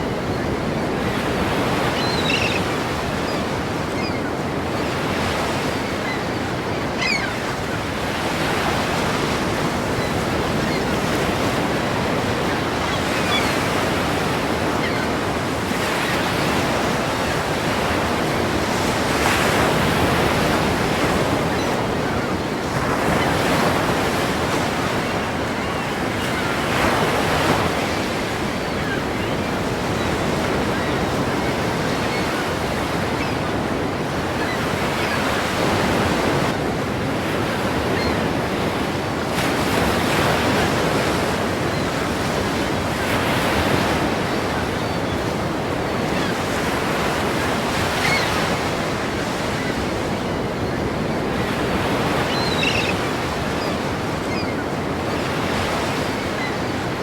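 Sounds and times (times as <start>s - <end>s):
ocean waves breaking: 0.0s - 57.0s
wind: 0.0s - 57.0s.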